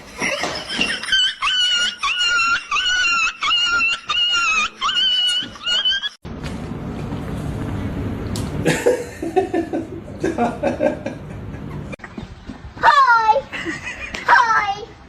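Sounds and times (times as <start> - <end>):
dog whining yelps: 1.4 - 6.2.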